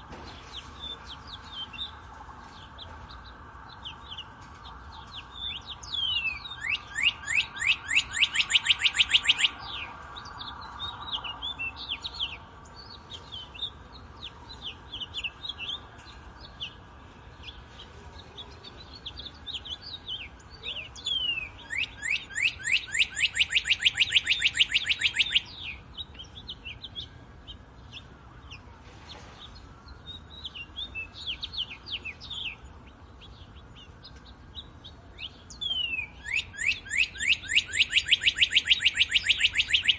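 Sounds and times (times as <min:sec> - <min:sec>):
songbirds chirping: 0:00.0 - 0:39.9
rapid bird trills: 0:05.2 - 0:13.8, 0:19.0 - 0:27.2, 0:35.2 - 0:39.9.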